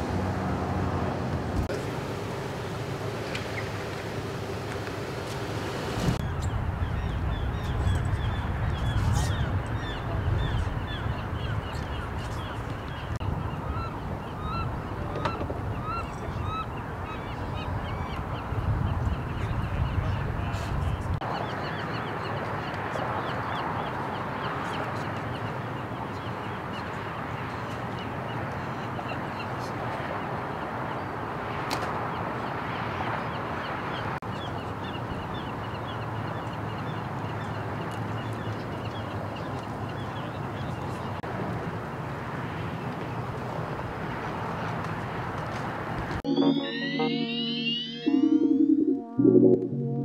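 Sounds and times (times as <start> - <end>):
steady background noise: 0.0 - 50.0
birds chirping: 2.4 - 20.5, 46.2 - 48.6.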